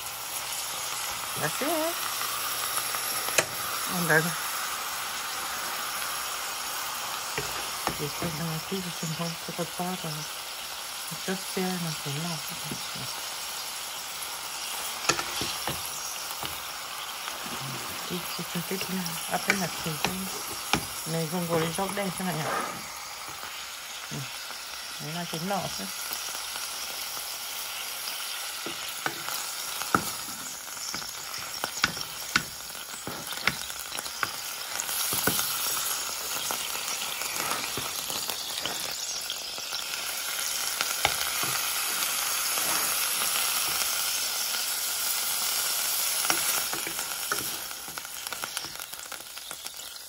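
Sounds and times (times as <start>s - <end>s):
greens sizzling in a pot: 0.0s - 50.0s.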